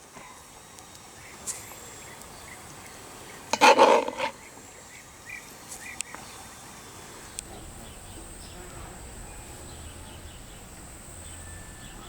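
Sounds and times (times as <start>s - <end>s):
faint chirps: 4.2s - 12.0s.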